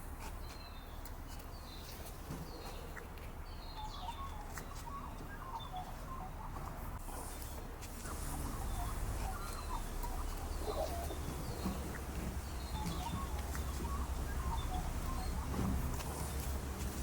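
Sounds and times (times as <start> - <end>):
birds chirping: 0.0 - 17.0
steady low rumble: 3.6 - 17.0.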